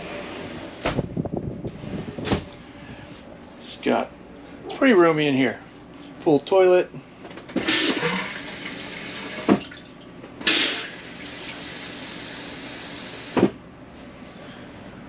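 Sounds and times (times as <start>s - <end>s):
water running: 7.7s - 13.3s.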